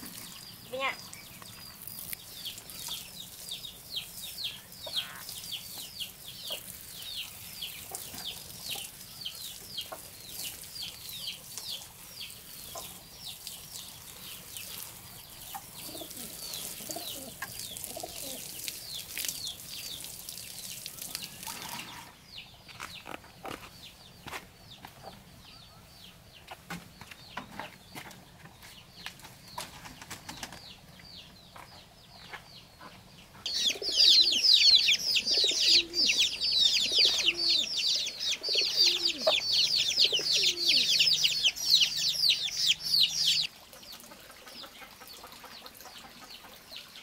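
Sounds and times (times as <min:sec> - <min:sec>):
water sprinkling from watering can: 0:00.0 - 0:22.2
bird chirping: 0:00.0 - 0:43.5.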